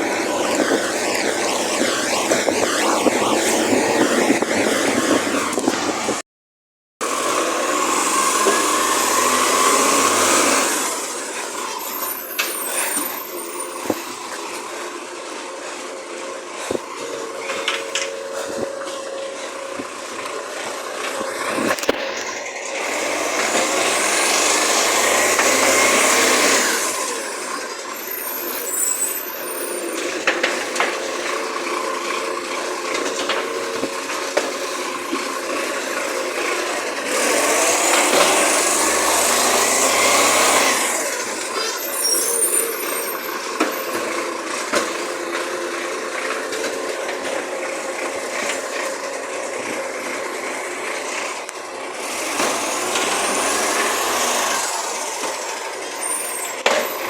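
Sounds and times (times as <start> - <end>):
rising whine and noisy rush: 0.0 - 6.2
truck engine running: 7.0 - 57.0.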